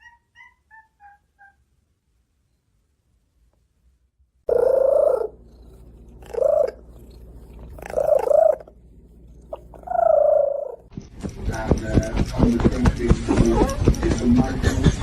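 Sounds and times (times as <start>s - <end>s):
cat meowing: 7.7s - 8.7s.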